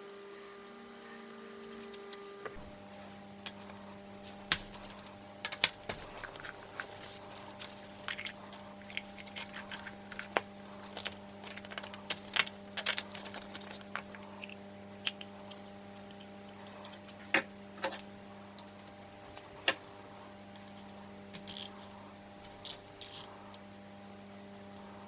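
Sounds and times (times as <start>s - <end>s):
low electrical hum: 0.0s - 25.0s
hand tools and metal parts clinking: 22.6s - 23.3s.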